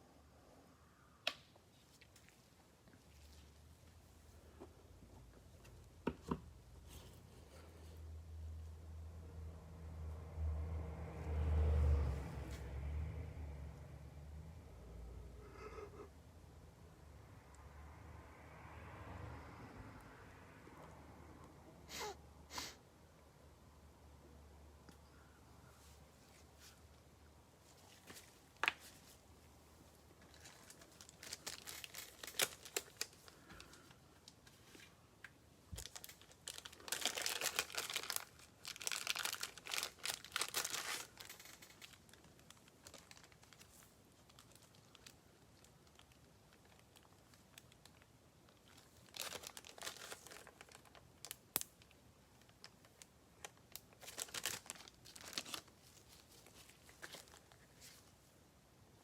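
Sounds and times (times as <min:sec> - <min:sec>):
plastic packaging crinkling: 0:30.2 - 0:34.8, 0:35.7 - 0:58.0.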